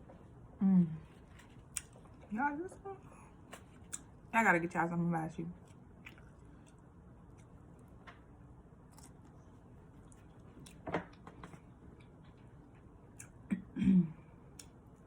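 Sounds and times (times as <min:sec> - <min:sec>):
low hummed voice: 0:00.5 - 0:01.5, 0:02.3 - 0:03.5, 0:13.4 - 0:14.4.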